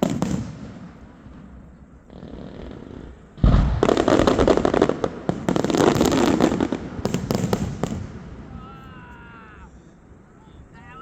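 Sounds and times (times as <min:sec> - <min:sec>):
loud firework cracks: 0:00.0 - 0:09.4
fireworks crackling: 0:00.0 - 0:11.0
firework boom: 0:02.7 - 0:08.6.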